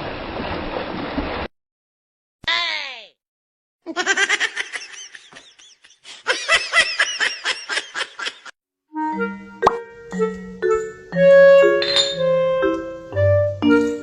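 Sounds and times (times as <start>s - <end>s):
high-pitched laughter: 3.9s - 8.5s.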